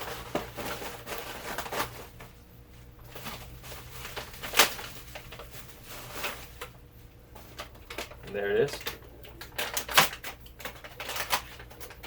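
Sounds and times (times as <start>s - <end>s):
packaging rustling: 0.0s - 2.4s, 3.0s - 6.8s.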